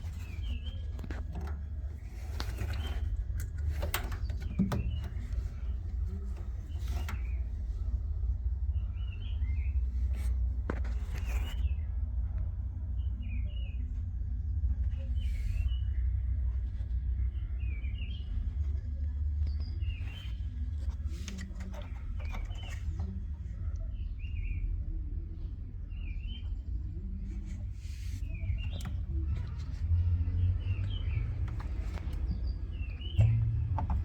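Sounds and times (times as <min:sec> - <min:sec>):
birds chirping: 0:28.3 - 0:34.0.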